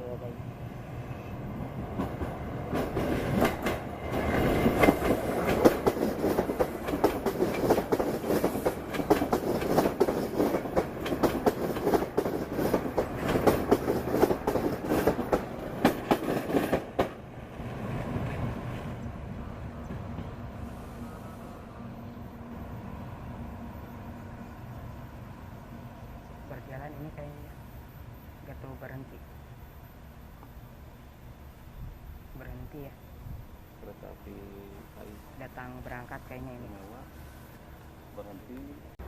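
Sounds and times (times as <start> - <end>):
train rumble: 0.0 - 39.0
train wheels clacking over rail joints: 2.0 - 3.9, 4.7 - 17.2.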